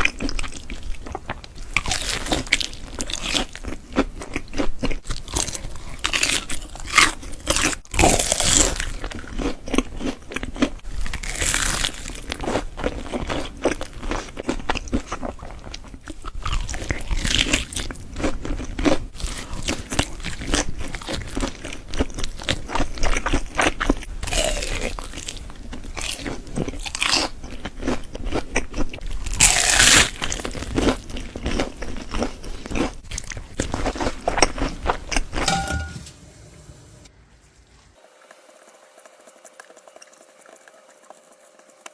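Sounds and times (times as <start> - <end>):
crunchy chewing: 0.0 - 35.4, 38.2 - 41.9.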